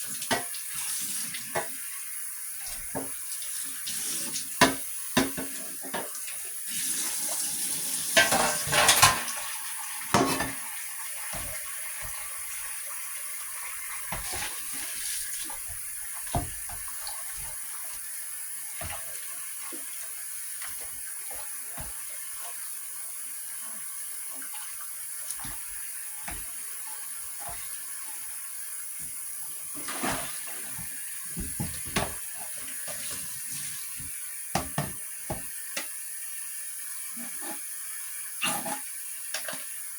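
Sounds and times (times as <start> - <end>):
water running at a sink: 0.0 - 39.9
dishes clinking: 8.2 - 9.5.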